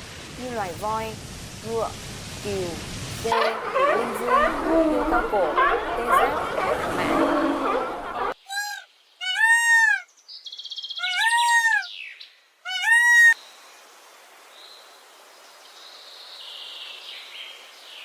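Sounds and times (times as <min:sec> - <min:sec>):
faint background noise: 0:00.0 - 0:18.0
high meow-like animal calls: 0:08.5 - 0:10.0, 0:11.0 - 0:11.9, 0:12.7 - 0:13.4.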